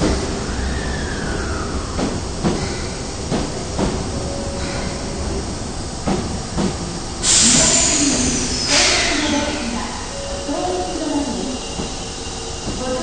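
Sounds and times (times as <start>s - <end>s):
subway train wheels clacking: 0.0s - 13.0s
train rumble: 0.0s - 13.0s
loud air hiss: 7.2s - 10.1s.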